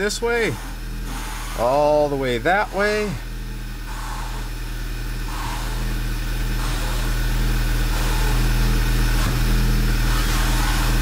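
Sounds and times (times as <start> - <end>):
car engine idling: 0.0 - 11.0
hiss: 5.3 - 6.0, 9.1 - 11.0.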